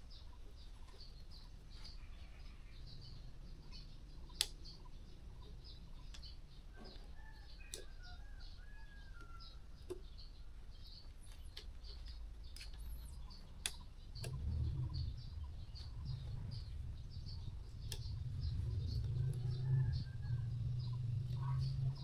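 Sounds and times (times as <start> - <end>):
small birds chirping: 0.0 - 22.0
steady low hum: 11.4 - 22.0.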